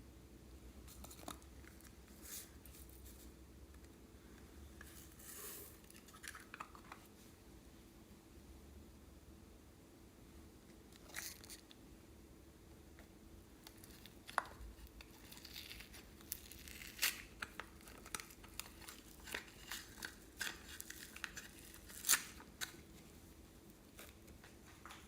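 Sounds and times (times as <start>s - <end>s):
slime crackling and popping: 13.6s - 22.8s.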